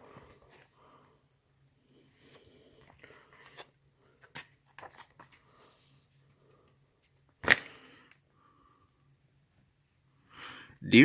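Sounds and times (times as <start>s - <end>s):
paper pages rustling: 2.1s - 8.0s.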